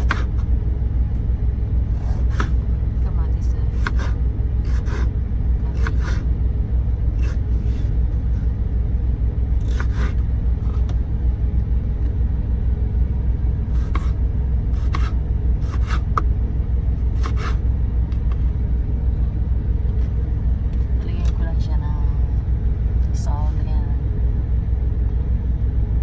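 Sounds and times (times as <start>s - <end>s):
truck rumble from cab: 0.0s - 26.0s.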